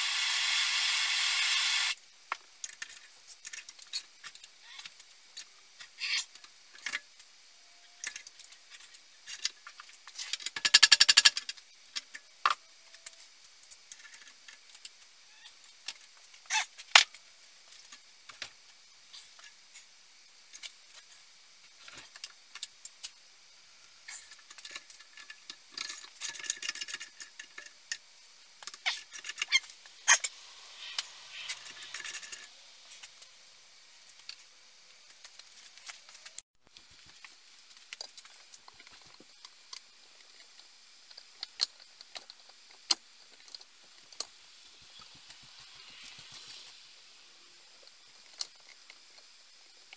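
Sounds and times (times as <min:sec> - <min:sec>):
metal parts and tools clicking: 0:07.8 - 0:15.0, 0:24.1 - 0:28.0, 0:28.6 - 0:33.3.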